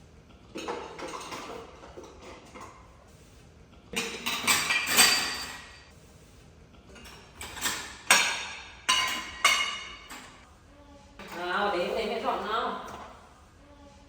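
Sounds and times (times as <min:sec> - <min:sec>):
dishes and pots clattering: 0:00.4 - 0:03.0, 0:03.9 - 0:05.9, 0:06.9 - 0:10.4.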